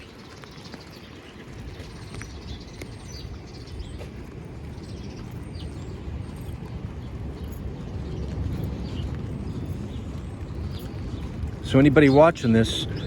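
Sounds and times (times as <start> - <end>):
faint footstep clicks: 0.0 - 13.0
small birds chirping: 0.0 - 13.0.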